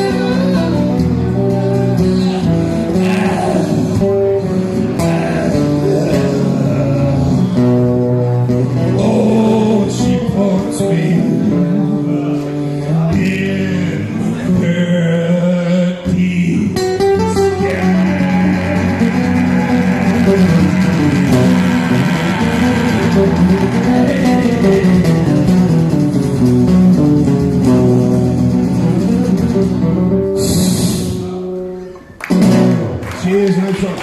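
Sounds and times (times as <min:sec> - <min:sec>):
guitar playing: 0:00.0 - 0:33.2
person singing: 0:01.4 - 0:07.6, 0:08.6 - 0:26.0.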